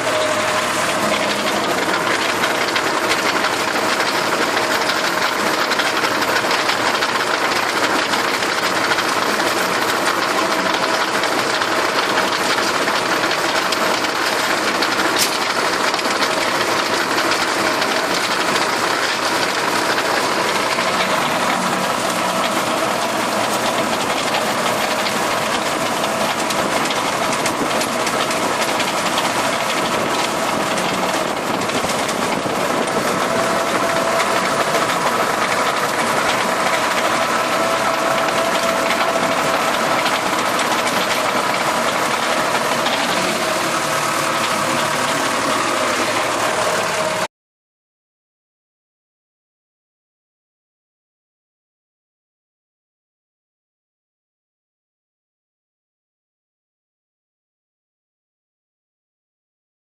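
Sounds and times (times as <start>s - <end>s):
rotary implement clattering: 0.0s - 47.2s
tractor engine running: 0.0s - 47.3s.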